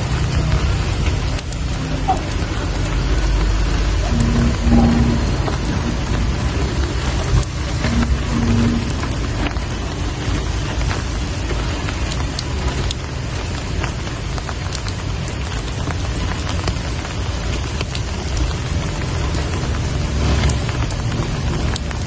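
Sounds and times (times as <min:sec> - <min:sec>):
low rumble: 0:00.0 - 0:13.7
rain falling: 0:00.0 - 0:22.0
raindrops ticking: 0:00.0 - 0:22.0.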